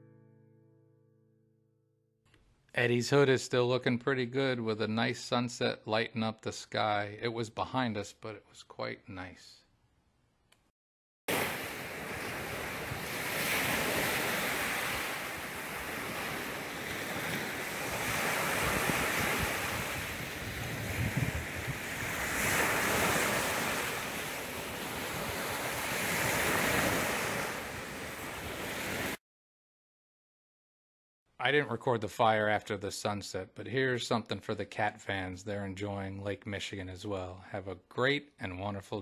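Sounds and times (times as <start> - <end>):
waves breaking on shore: 11.3 - 29.2
wind buffeting microphone: 15.9 - 22.9.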